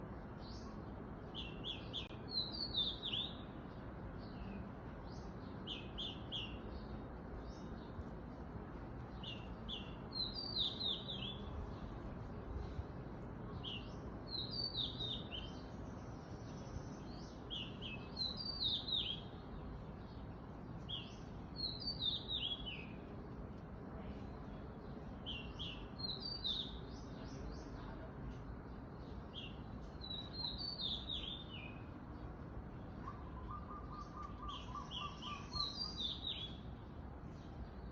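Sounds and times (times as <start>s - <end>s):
low background noise: 0.0s - 37.9s
songbird singing: 0.0s - 37.9s.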